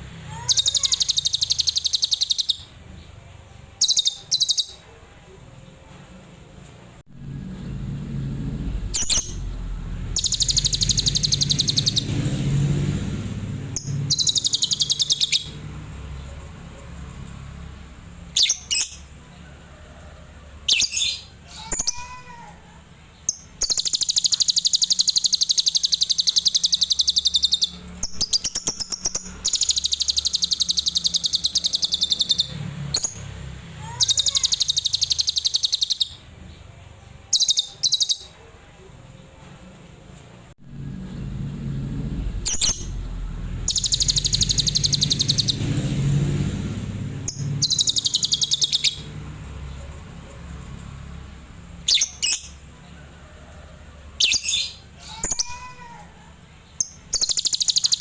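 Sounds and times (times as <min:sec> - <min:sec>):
bird chirps: 0:00.3 - 0:03.1, 0:03.8 - 0:04.9, 0:08.8 - 0:12.3, 0:13.7 - 0:17.4, 0:18.2 - 0:19.2, 0:23.1 - 0:36.7, 0:37.3 - 0:38.4, 0:42.4 - 0:45.8, 0:47.2 - 0:51.1, 0:51.8 - 0:52.7, 0:54.2 - 0:56.0, 0:56.6 - 0:58.0
lovebird singing rapid trills: 0:00.4 - 0:02.6, 0:03.8 - 0:04.8, 0:08.9 - 0:12.2, 0:13.7 - 0:15.6, 0:18.3 - 0:19.1, 0:23.2 - 0:33.2, 0:33.8 - 0:36.2, 0:42.5 - 0:45.7, 0:47.2 - 0:49.2, 0:56.8 - 0:58.0.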